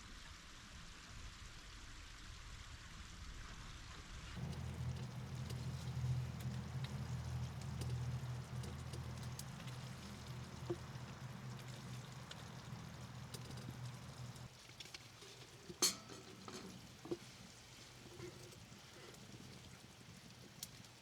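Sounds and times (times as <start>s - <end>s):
food sizzling in a skillet: 4.4s - 21.0s
low stove rumble: 4.4s - 21.0s.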